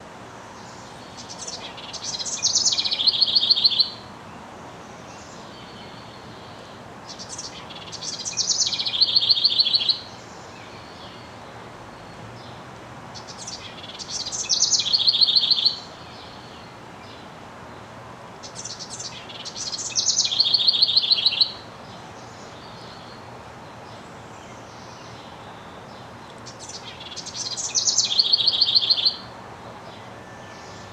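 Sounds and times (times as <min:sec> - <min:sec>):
wren singing with trill: 0:01.2 - 0:04.1, 0:07.1 - 0:10.2, 0:13.2 - 0:16.5, 0:18.4 - 0:21.6, 0:26.4 - 0:29.3.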